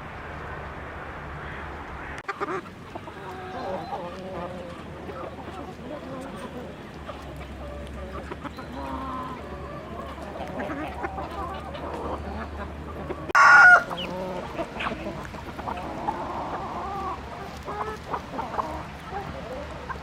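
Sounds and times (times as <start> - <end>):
chickens clucking: 1.4 - 20.0
loud short chicken call: 13.4 - 13.9.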